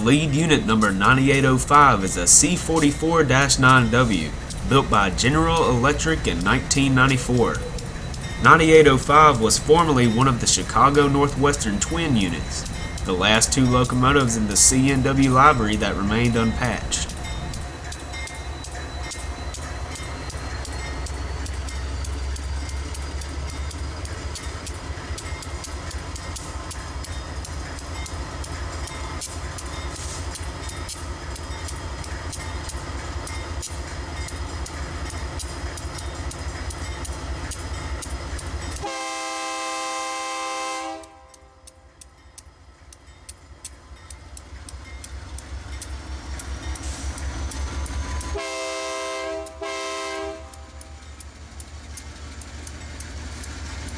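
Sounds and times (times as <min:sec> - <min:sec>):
train wheels clicking over rail: 0:00.0 - 0:38.9, 0:40.8 - 0:53.9
diesel locomotive engine rumble: 0:00.0 - 0:53.9
locomotive air horn: 0:38.8 - 0:41.7, 0:48.2 - 0:50.7.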